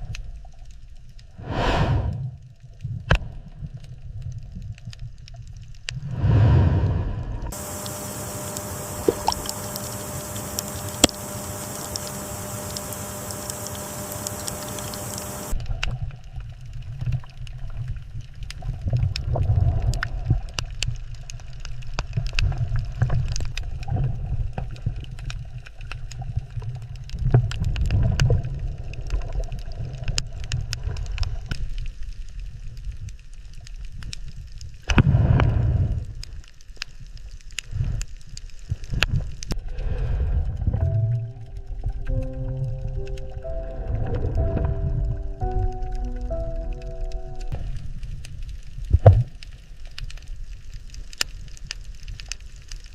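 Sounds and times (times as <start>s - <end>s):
steady hiss with hum: 5.7s - 27.4s, 34.3s - 52.9s
water gurgling and bubbling: 6.0s - 15.6s, 39.6s - 46.8s
scattered clicks: 7.5s - 15.6s.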